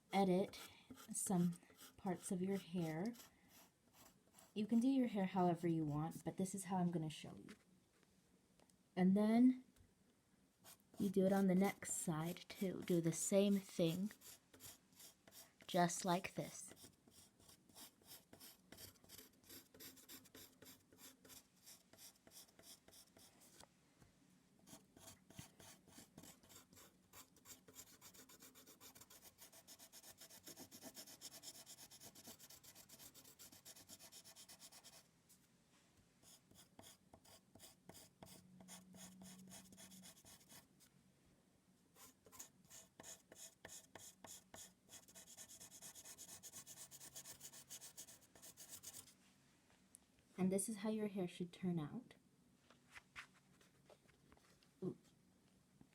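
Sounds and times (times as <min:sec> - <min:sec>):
pencil scratching strokes: 0:00.2 - 0:04.9, 0:05.8 - 0:06.4, 0:10.6 - 0:23.6, 0:24.6 - 0:35.1, 0:36.2 - 0:40.7, 0:42.0 - 0:49.2.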